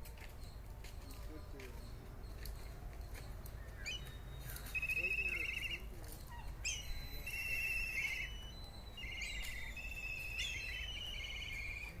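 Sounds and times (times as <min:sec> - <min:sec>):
kite whistling and trilling: 0:06.6 - 0:12.0.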